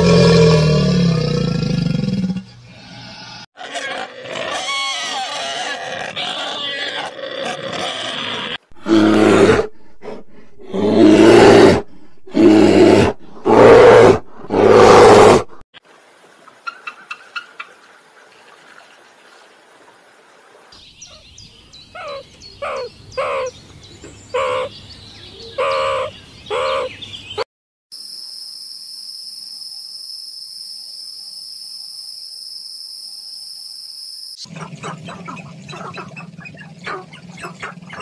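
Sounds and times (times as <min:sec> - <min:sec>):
eagle chirping: 0:21.0 - 0:27.4
lemur calls: 0:21.9 - 0:23.6, 0:24.3 - 0:27.0.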